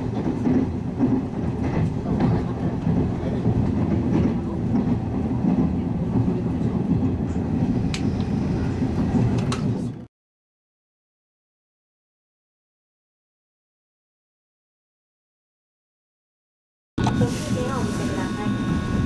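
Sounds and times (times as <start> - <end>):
train wheels rumbling on rail: 0.0 - 10.1, 17.0 - 19.0.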